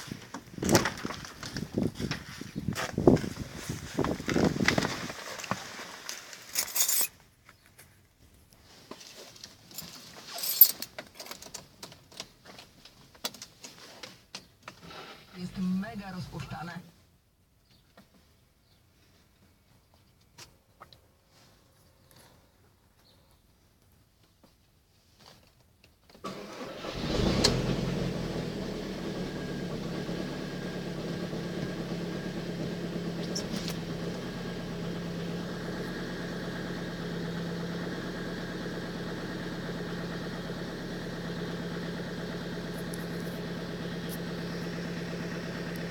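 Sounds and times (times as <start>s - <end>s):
diesel engine idling: 26.8s - 45.9s.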